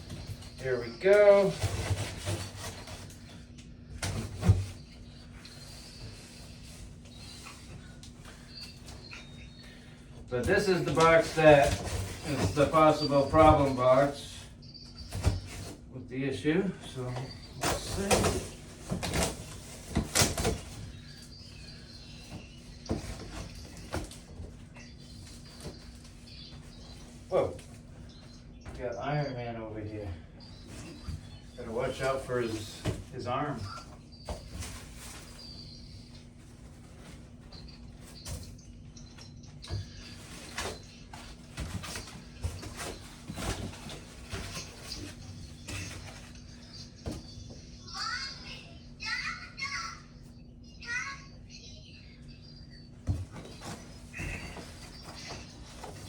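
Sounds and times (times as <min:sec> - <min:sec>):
cardboard and packing material handled: 0:00.0 - 0:03.3, 0:10.4 - 0:14.4, 0:17.1 - 0:21.0, 0:30.6 - 0:35.6, 0:39.7 - 0:47.2.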